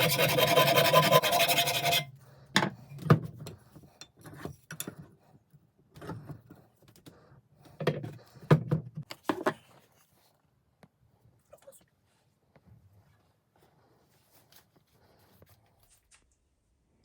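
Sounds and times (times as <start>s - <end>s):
sanding metal hammer: 0.0s - 2.1s.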